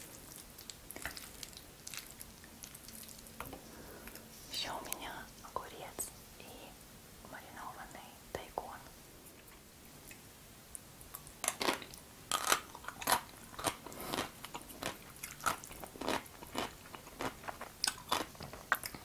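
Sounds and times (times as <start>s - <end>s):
crunchy chewing of pickled radish: 0.0s - 4.4s, 11.0s - 19.0s.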